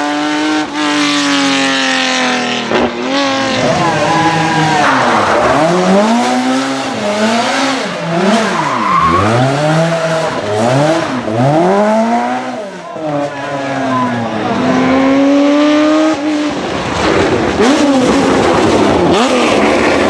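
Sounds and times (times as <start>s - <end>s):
rally car engine revving: 0.0s - 20.0s
tyres squealing and skidding: 2.7s - 15.0s.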